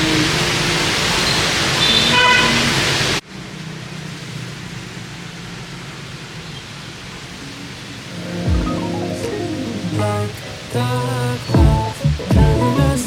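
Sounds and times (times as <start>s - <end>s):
heavy rain on a street: 0.0s - 8.1s
vehicle horn toot: 1.8s - 2.6s.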